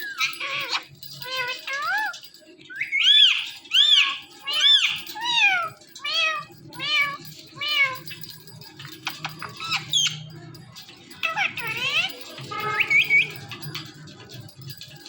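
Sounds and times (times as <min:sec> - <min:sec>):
parrot imitating cat meows: 0:03.1 - 0:08.1.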